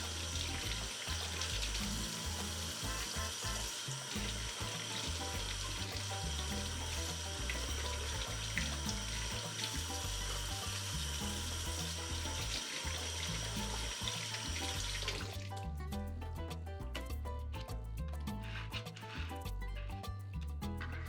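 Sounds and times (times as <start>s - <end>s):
water running from tap into sink: 0.0s - 15.6s
background music with bass line: 0.0s - 21.0s.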